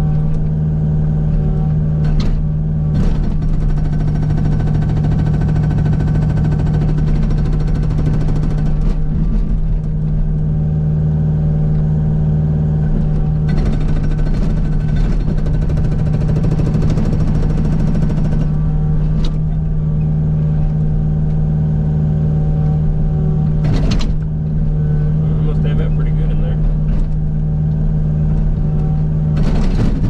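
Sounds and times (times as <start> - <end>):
diesel excavator engine running: 0.0 - 30.0
hydraulic breaker hammering rock: 2.0 - 9.9, 12.9 - 19.5, 23.6 - 24.7, 29.3 - 30.0.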